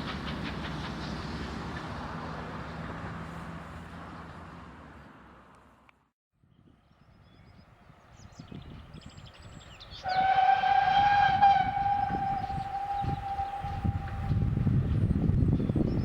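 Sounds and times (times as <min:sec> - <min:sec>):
train rumble: 0:00.0 - 0:05.1, 0:07.8 - 0:16.0
locomotive whistle blast: 0:10.0 - 0:14.7.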